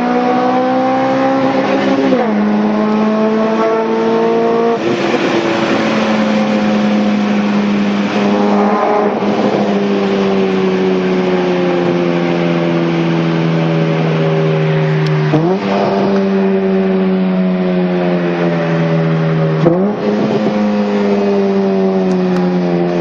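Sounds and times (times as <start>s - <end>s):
engine running hard: 0.0s - 23.0s.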